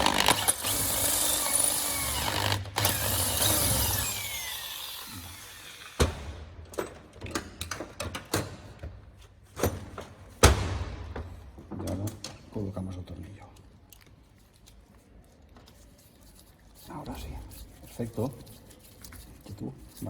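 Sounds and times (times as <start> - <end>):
electric drill running: 0.0 - 6.4.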